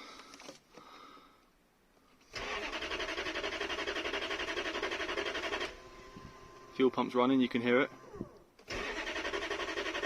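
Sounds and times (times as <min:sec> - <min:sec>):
starter motor cranking engine: 0:02.3 - 0:06.8, 0:07.7 - 0:10.0.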